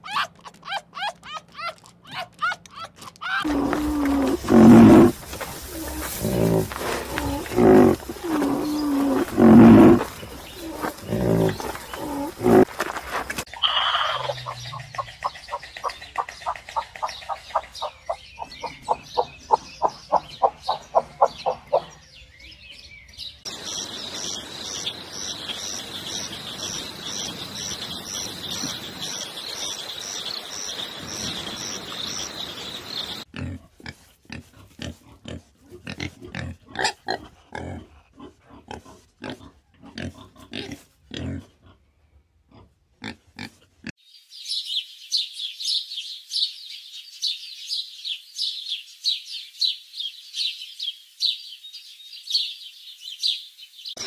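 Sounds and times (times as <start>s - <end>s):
rapid bird chirping: 3.3s - 12.7s, 13.4s - 33.3s
low animal grunts: 3.4s - 12.7s, 13.6s - 16.0s, 33.2s - 41.9s.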